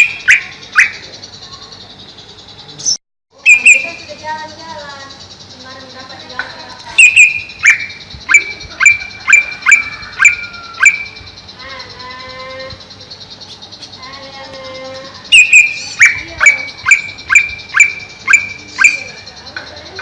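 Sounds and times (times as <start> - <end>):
bird calling sharp repeated notes: 0.0 - 20.0
bird warbling: 0.0 - 20.0.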